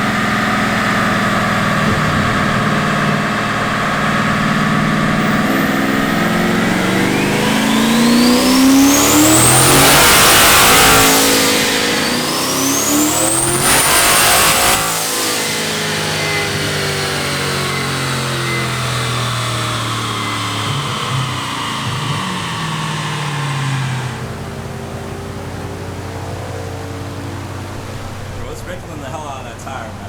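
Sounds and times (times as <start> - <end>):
engine at full throttle: 0.0 - 30.0
turbo whine: 0.0 - 30.0.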